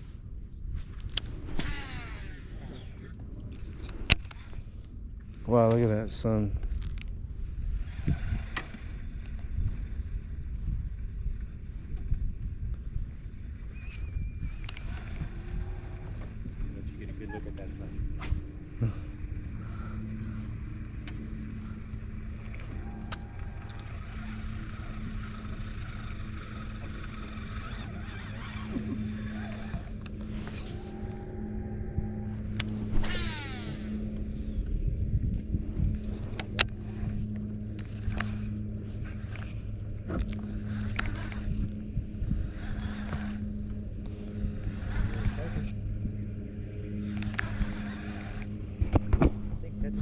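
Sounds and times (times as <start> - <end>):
boat motor humming: 0.0 - 50.0
sharp clicks: 39.3 - 41.8.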